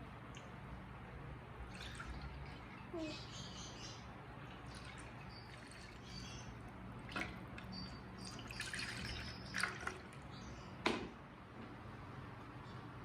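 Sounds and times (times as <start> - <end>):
water dripping and trickling: 0.2 - 0.7, 1.6 - 3.0, 4.4 - 10.4.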